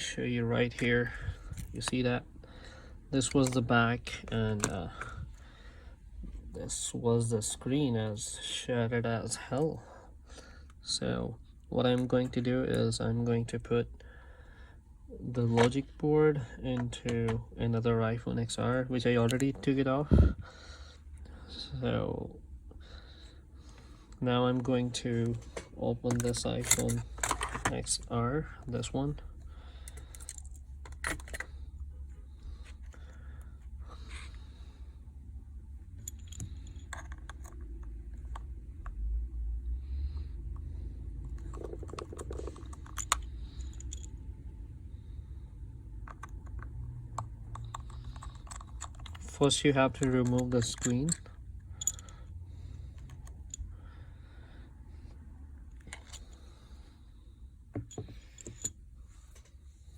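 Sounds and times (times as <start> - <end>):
steady low hum: 0.0 - 59.9
phone and tools clicking: 41.2 - 44.2, 46.0 - 52.2.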